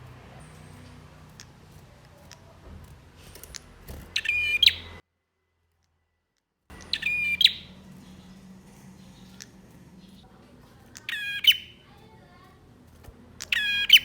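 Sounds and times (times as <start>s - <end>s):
faint bird chirps: 3.5s - 5.0s, 6.7s - 12.2s, 13.4s - 14.0s
loud fast bird chattering: 3.5s - 5.0s, 6.7s - 10.2s, 10.8s - 12.2s, 13.3s - 14.0s.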